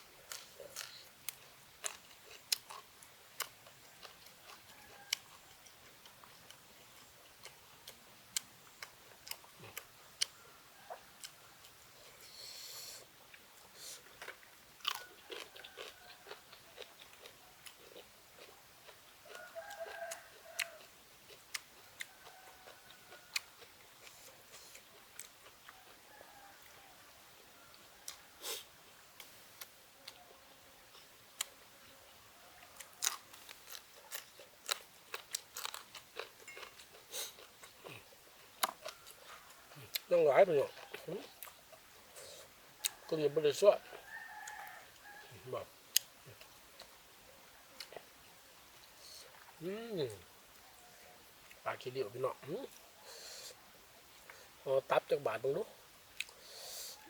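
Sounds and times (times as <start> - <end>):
person chewing crunchy food: 0.2 - 26.8, 32.6 - 47.0, 47.8 - 48.1, 56.1 - 57.0.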